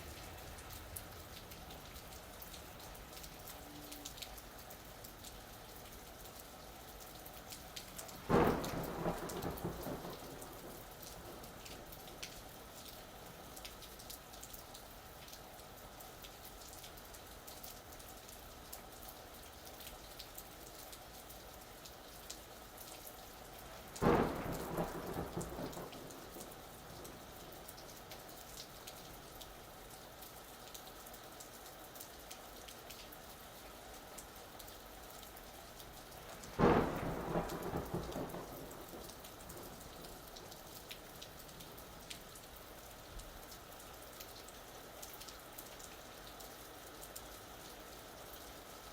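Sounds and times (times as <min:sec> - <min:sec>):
steady rain falling: 0:00.0 - 0:48.9
thunder claps: 0:08.3 - 0:11.8, 0:24.0 - 0:27.2, 0:36.4 - 0:40.2.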